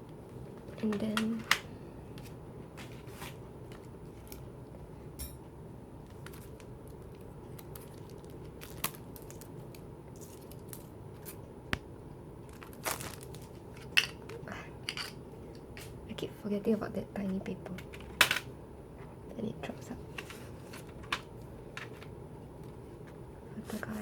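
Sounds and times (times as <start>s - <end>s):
packaging clicking and snapping: 6.1s - 11.4s
paper crinkling and tearing: 12.5s - 13.6s.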